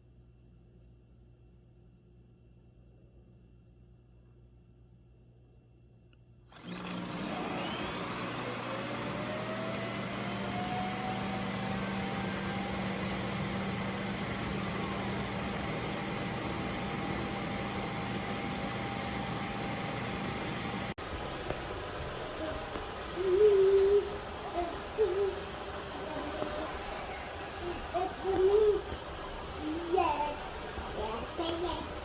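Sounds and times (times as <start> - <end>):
vacuum suction motor whine: 6.5 - 32.0.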